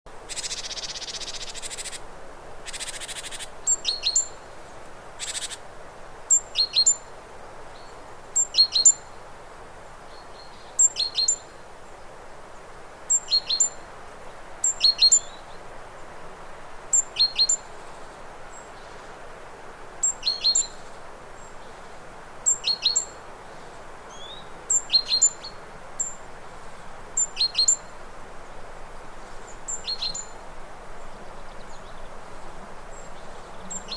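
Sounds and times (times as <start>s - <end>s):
steady background hiss: 0.1s - 33.9s
hummingbird chirping: 0.3s - 2.0s, 2.6s - 4.3s, 5.2s - 5.6s, 32.9s - 33.9s.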